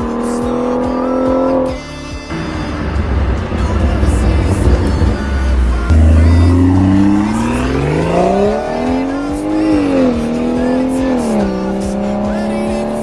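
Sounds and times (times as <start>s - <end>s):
car engine accelerating hard: 0.0s - 1.7s, 2.3s - 13.0s.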